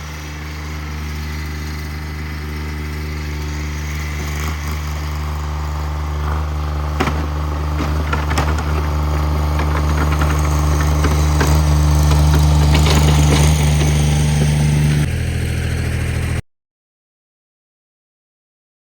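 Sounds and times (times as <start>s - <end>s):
garden tractor engine running: 0.0s - 16.4s
metallic clanks: 6.2s - 15.1s.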